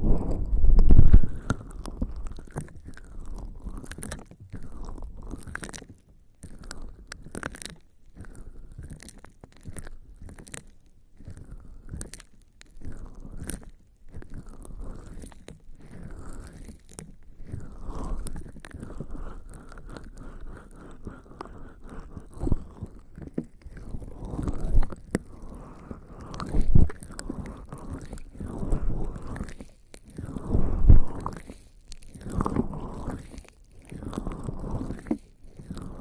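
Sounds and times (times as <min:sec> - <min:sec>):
muffled bumps: 0:00.0 - 0:01.4
wet skin rubbing on microphone: 0:00.0 - 0:03.0, 0:17.5 - 0:36.0.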